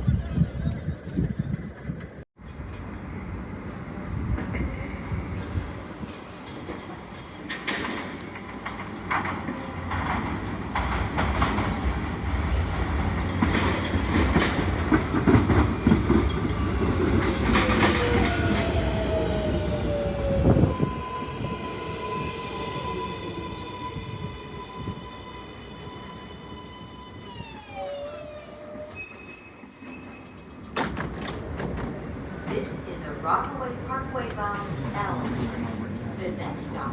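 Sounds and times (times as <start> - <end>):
train wheels rumbling and clacking: 1.7 - 36.9
train electric motor whine: 15.8 - 29.2.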